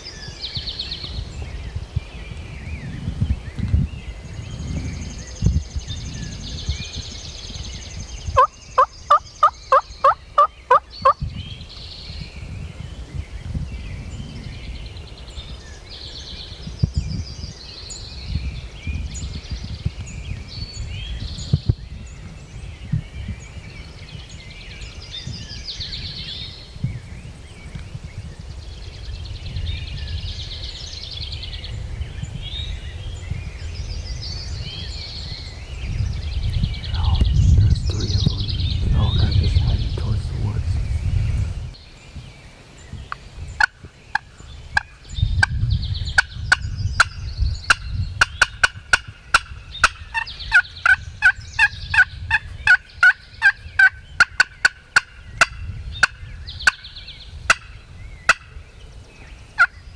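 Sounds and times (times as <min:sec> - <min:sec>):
songbirds chirping: 0:00.0 - 0:59.9
turkey yelps: 0:08.4 - 0:11.2.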